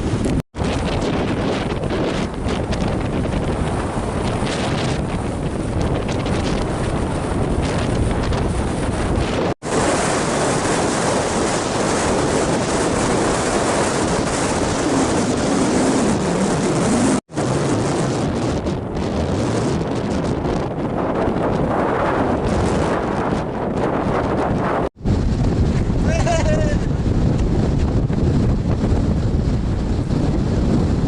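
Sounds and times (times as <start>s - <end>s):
wind buffeting microphone: 0.0s - 31.0s
waves breaking: 7.6s - 17.7s.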